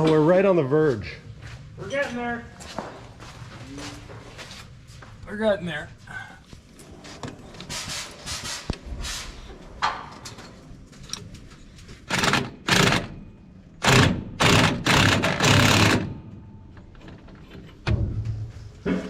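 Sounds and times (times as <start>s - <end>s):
impact wrench hammering: 13.8s - 16.2s.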